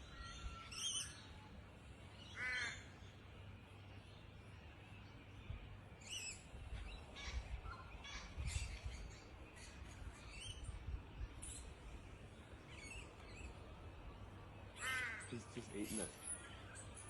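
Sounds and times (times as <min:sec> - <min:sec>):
wild birds calling: 0:00.0 - 0:01.4, 0:02.1 - 0:03.4, 0:06.0 - 0:17.0
harsh caw-like bird call: 0:02.2 - 0:02.9, 0:14.8 - 0:15.4.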